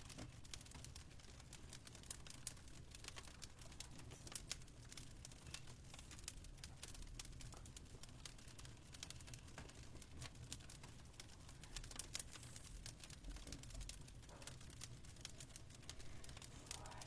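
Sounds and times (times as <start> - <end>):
fire crackling faintly: 0.0 - 17.0
low steady rumble: 15.8 - 17.0.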